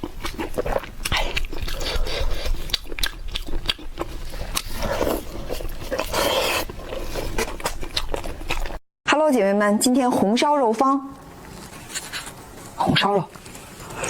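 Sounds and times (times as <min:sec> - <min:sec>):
chewing clicks and mouth smacks: 0:00.0 - 0:08.8
wet slurping: 0:00.0 - 0:08.8.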